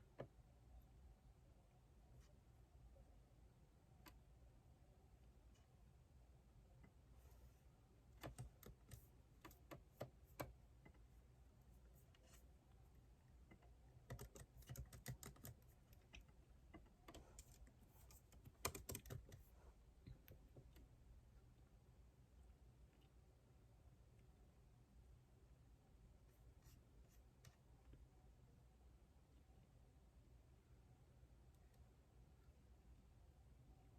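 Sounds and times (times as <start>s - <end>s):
typing on computer keyboard: 8.2s - 10.6s, 13.5s - 19.5s.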